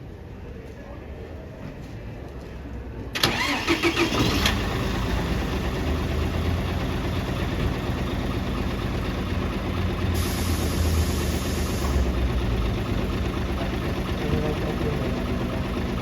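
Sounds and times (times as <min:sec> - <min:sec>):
bus engine idling: 0:03.1 - 0:16.0
high hiss: 0:10.2 - 0:12.1.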